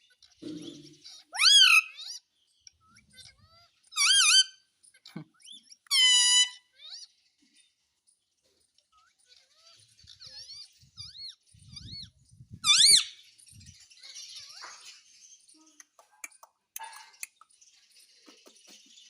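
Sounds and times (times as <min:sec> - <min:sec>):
parrot squawking: 0:01.1 - 0:02.2, 0:03.0 - 0:05.1, 0:05.9 - 0:07.1, 0:12.6 - 0:13.2.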